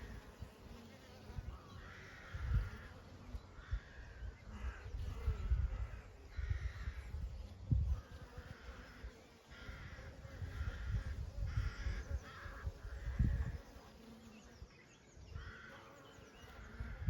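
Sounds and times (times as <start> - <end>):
honey bees buzzing: 0.0 - 17.0
crow cawing: 1.8 - 2.5.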